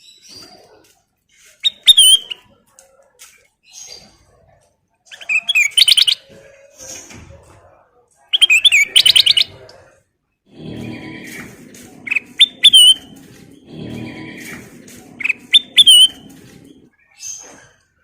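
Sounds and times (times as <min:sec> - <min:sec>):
bulbul singing: 0:05.1 - 0:06.3, 0:08.4 - 0:09.6, 0:10.6 - 0:17.1.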